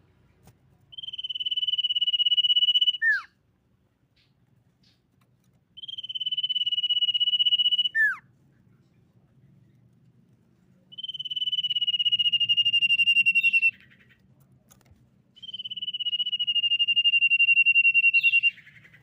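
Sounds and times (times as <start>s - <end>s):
bird singing trilled whistles: 0.9s - 3.3s, 5.8s - 8.2s, 10.9s - 14.0s, 15.4s - 19.0s.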